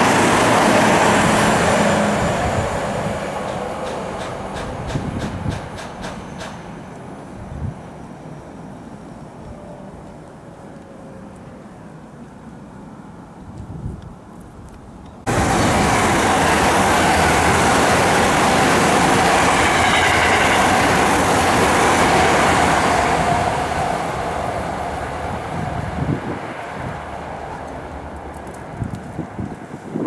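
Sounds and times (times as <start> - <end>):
electric train passing at speed: 0.0 - 13.5, 15.2 - 30.0.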